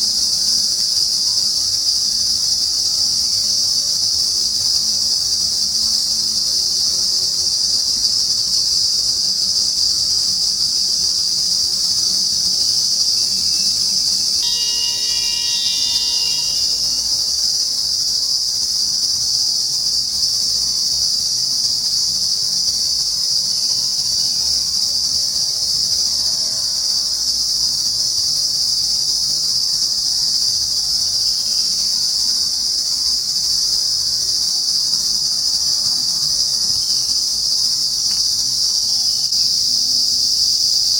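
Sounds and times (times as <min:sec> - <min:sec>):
insects droning: 0:00.0 - 0:40.9
pitched tone: 0:14.4 - 0:17.4.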